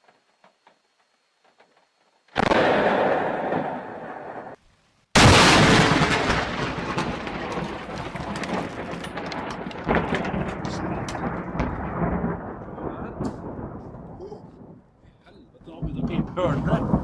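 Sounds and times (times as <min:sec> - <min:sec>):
loud thunderclap with crackles: 0:02.4 - 0:04.6, 0:05.2 - 0:15.0, 0:15.6 - 0:17.0
thunder rumble: 0:05.2 - 0:17.0.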